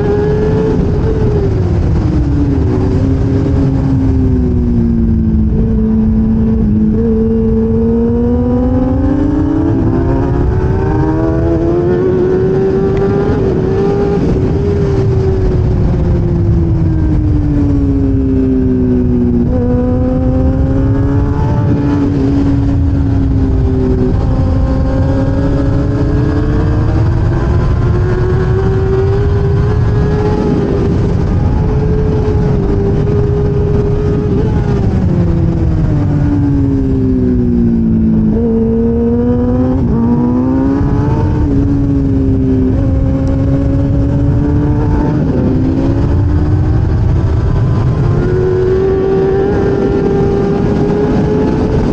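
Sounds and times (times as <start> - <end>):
heavy rushing noise: 0.0 - 51.9
racing motorcycle engine revving: 0.0 - 51.9.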